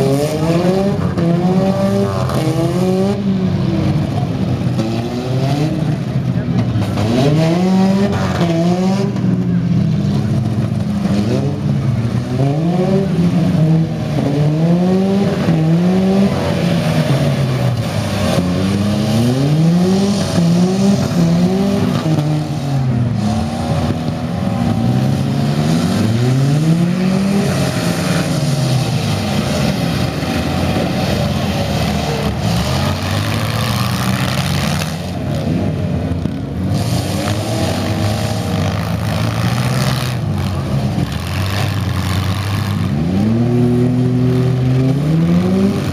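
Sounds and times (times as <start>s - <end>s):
engines revving hard: 0.0s - 45.9s.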